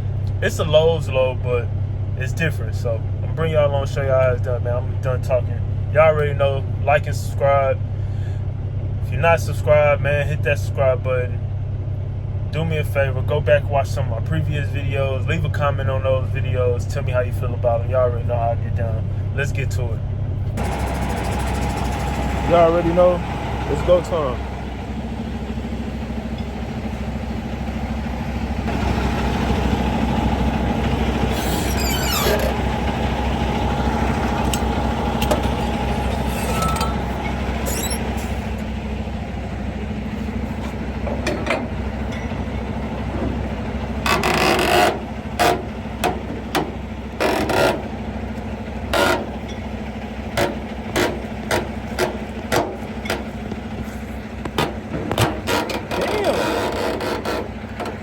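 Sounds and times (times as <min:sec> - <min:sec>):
diesel truck engine running: 0:00.0 - 0:58.0
knocks and clanks: 0:34.2 - 0:38.6, 0:40.5 - 0:48.0, 0:48.9 - 0:49.7, 0:50.3 - 0:58.0.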